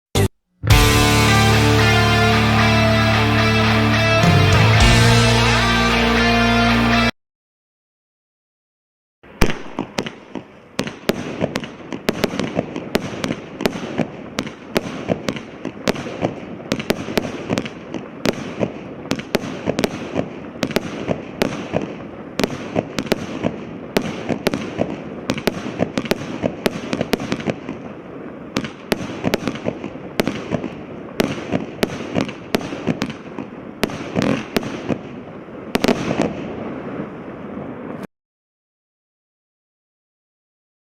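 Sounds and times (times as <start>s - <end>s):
firework bangs: 9.2s - 38.1s
firework hiss and crackle: 9.2s - 38.1s.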